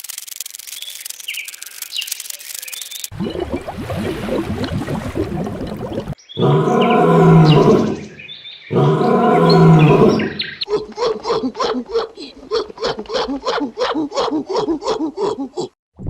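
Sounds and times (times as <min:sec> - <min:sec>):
animal calling: 0:06.4 - 0:15.7.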